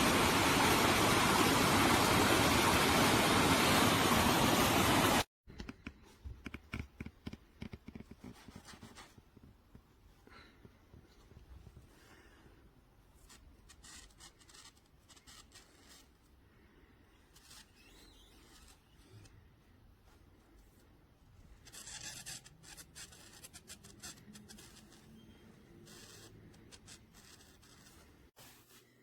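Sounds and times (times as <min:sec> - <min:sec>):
rustling and scratching handling noise: 0:13.1 - 0:29.0.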